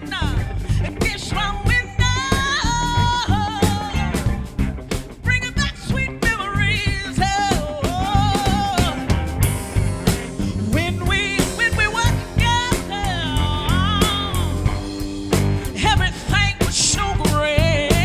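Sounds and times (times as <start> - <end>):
bass: 0.0 - 18.0
drums: 0.0 - 18.0.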